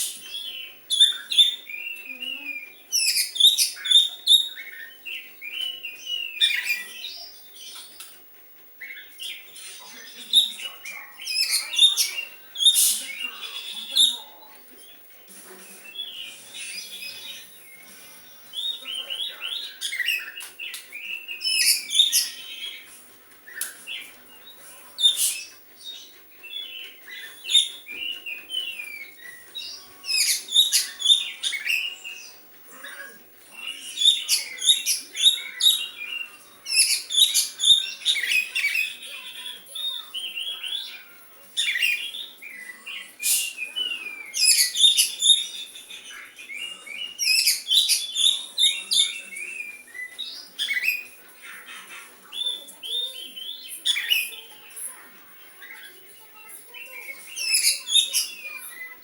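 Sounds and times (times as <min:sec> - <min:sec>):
bird singing high chirps and whistles: 0:00.0 - 0:08.0, 0:15.9 - 0:22.8, 0:26.4 - 0:32.4, 0:33.6 - 0:40.9, 0:41.6 - 0:51.2, 0:52.3 - 0:54.6, 0:56.6 - 0:59.0.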